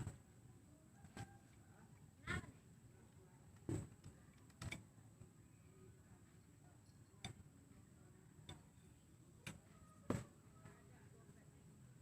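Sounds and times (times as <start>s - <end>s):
sharp clicks of metal parts: 4.3s - 4.9s.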